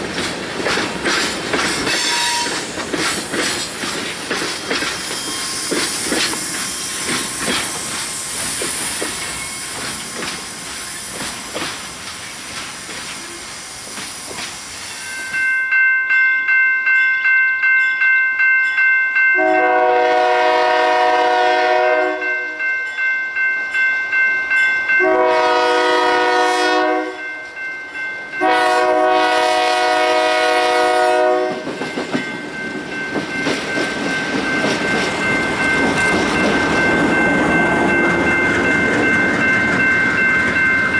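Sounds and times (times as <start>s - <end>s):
railroad crossing bell ringing: 0.0s - 13.4s, 14.8s - 40.9s
train wheel clatter: 0.0s - 15.4s, 31.1s - 40.9s
locomotive horn blasts: 1.9s - 2.6s, 19.4s - 22.6s, 25.0s - 27.3s, 28.4s - 31.6s.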